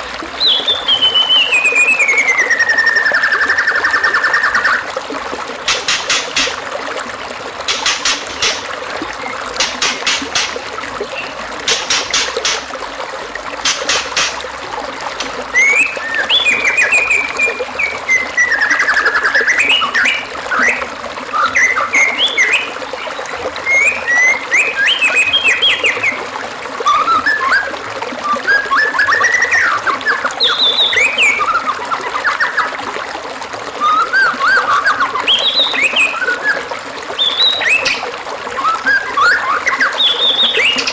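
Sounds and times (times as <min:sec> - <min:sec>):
water trickling: 0:00.0 - 0:40.9
songbird singing: 0:00.4 - 0:04.8, 0:15.2 - 0:26.2, 0:26.9 - 0:32.7, 0:33.8 - 0:40.9.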